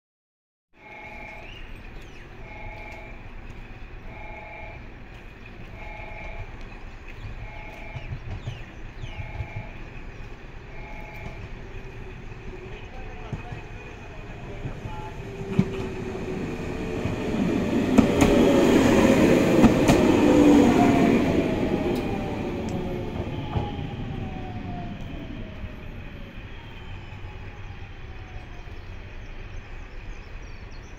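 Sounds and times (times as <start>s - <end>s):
electric train passing: 0.8s - 30.9s
train whine falling in pitch: 2.4s - 3.3s, 5.7s - 6.6s, 9.1s - 9.9s, 10.7s - 11.6s, 13.4s - 29.0s
train wheel clicks: 17.9s - 20.2s.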